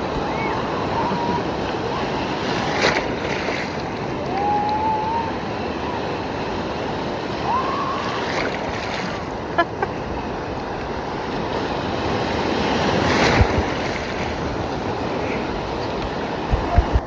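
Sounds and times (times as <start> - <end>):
waves rushing and breaking: 0.0 - 17.0
wind on microphone: 10.2 - 17.0.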